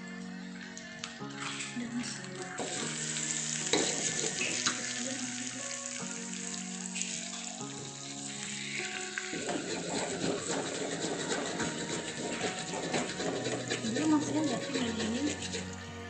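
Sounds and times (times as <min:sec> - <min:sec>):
chicken sizzling in oil: 0:00.1 - 0:16.0
spatula scraping a wok: 0:02.6 - 0:06.0, 0:08.3 - 0:15.9.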